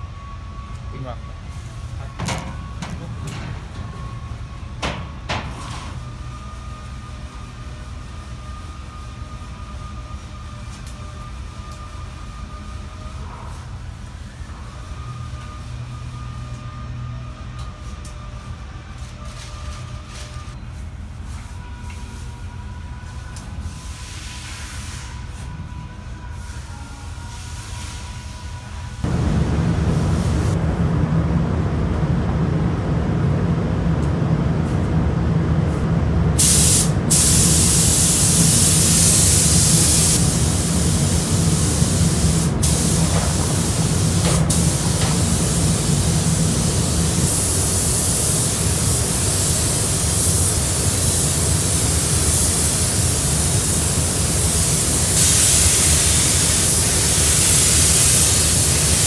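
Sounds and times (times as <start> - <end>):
steady low hum: 0.0 - 6.8, 29.0 - 59.0
paint spray gun hissing: 36.4 - 59.0.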